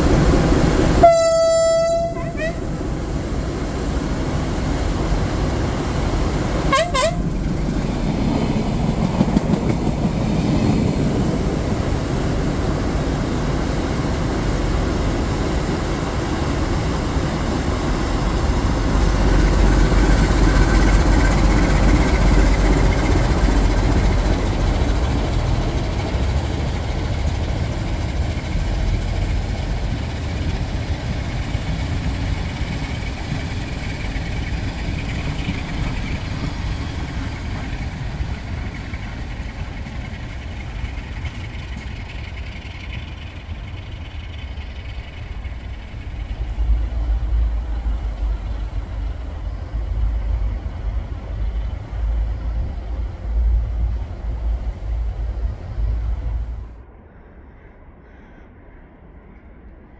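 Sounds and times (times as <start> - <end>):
train running with low rumble: 0.0 - 59.9
train horn blast: 1.0 - 2.7, 6.7 - 7.4.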